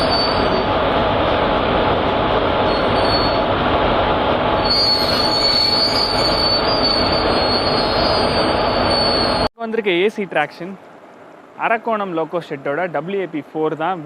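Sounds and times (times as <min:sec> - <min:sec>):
train wheels squealing on rails: 0:00.0 - 0:00.7, 0:02.6 - 0:03.5, 0:04.6 - 0:09.5
slow train rumbling: 0:00.0 - 0:14.0.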